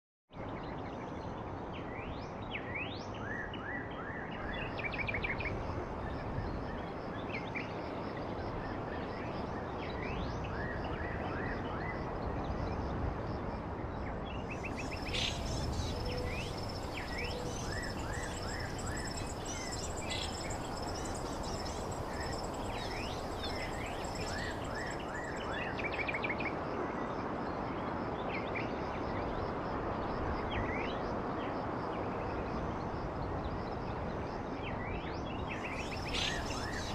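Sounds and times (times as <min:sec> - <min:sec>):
steady background hiss: 0:14.2 - 0:26.7, 0:35.4 - 0:36.9
finches chirping: 0:14.6 - 0:25.6, 0:35.6 - 0:36.9.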